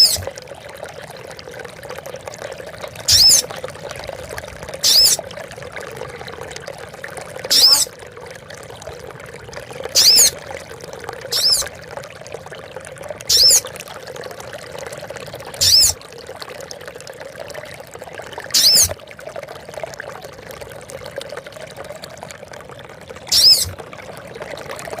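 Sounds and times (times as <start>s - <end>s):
water trickling: 0.0s - 25.0s
bird calling: 3.1s - 3.4s, 4.8s - 5.2s, 7.5s - 7.9s, 10.0s - 10.3s, 11.3s - 11.7s, 13.3s - 13.6s, 15.6s - 16.0s, 18.6s - 18.9s, 23.3s - 23.8s.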